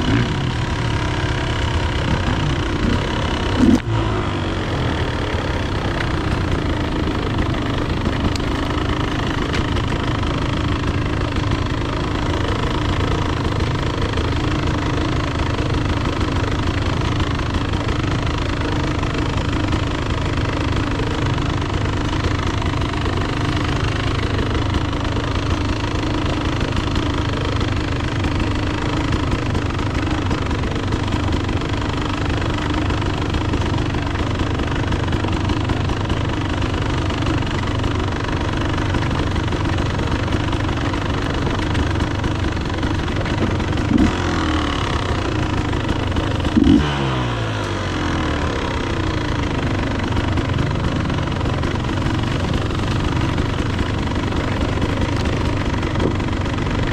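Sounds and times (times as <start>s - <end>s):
dirt bike engine revving: 0.0s - 36.4s, 37.1s - 56.9s
dirt bike engine running: 0.0s - 56.9s.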